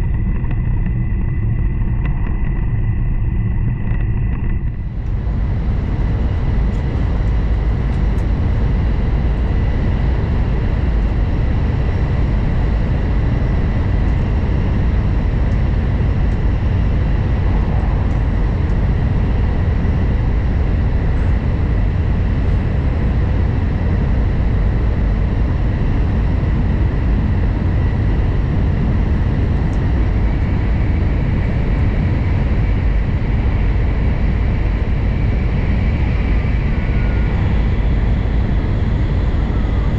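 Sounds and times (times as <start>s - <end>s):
train cabin rumble: 4.0s - 25.9s.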